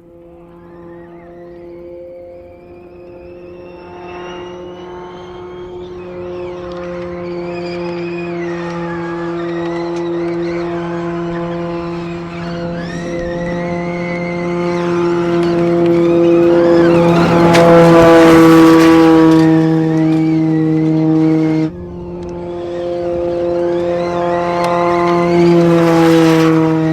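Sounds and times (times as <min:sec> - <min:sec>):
car engine drone: 0:00.0 - 0:26.9
electric motor whine: 0:00.0 - 0:26.9
tyres on gravel: 0:05.9 - 0:21.2.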